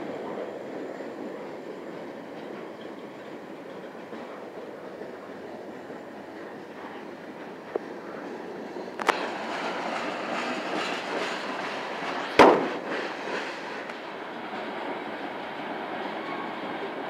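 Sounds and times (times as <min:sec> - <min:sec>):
train rumbling past: 0:00.0 - 0:17.0
sharp bangs: 0:12.3 - 0:13.3.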